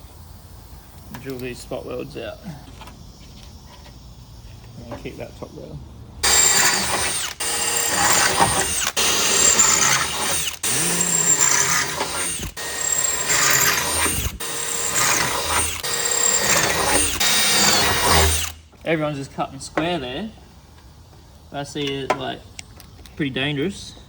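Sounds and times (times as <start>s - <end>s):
power drill boring into sheet steel: 6.2s - 18.6s.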